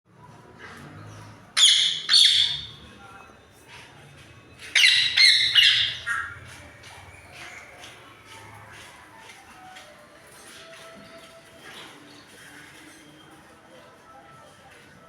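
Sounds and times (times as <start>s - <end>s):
parrot squawking: 1.6s - 2.8s, 4.8s - 6.4s.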